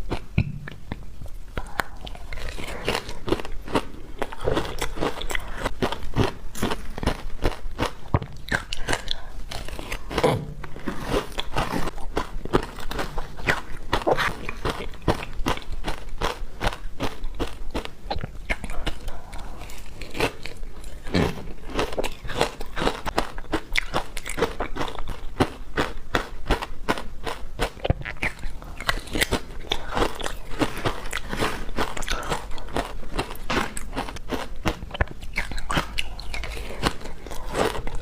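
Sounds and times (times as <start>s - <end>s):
teeth crunching frozen ice: 1.6s - 38.0s.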